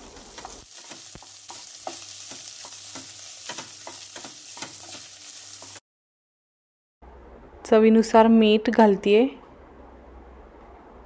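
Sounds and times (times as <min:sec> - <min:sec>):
potatoes sizzling in oil: 0:00.0 - 0:05.8.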